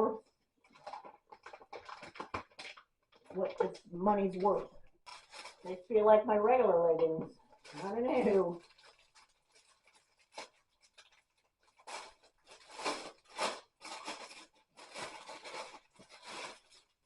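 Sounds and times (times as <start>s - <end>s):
fabric rustling and rubbing: 7.5s - 17.0s.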